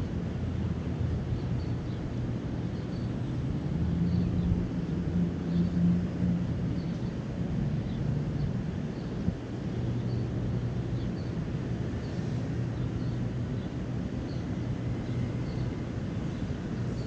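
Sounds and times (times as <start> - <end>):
low outdoor background hum: 0.0 - 17.0
small birds chirping: 1.3 - 3.4, 7.8 - 17.0.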